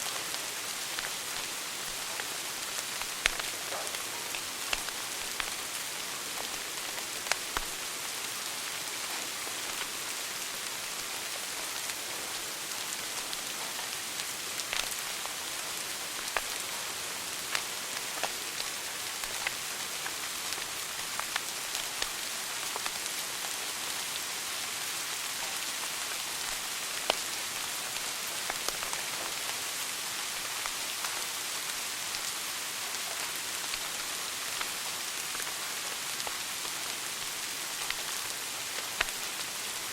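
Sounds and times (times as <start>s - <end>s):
wood fire crackling: 0.0s - 39.9s
sharp pops from fire: 3.0s - 5.6s.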